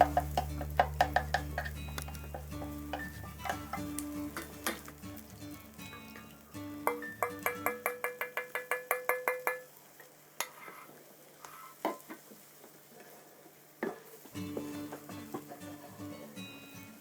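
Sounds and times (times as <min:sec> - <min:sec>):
metal spatulas clinking on hot plate: 0:00.0 - 0:05.0, 0:05.9 - 0:09.7
spatula scraping: 0:00.0 - 0:06.4.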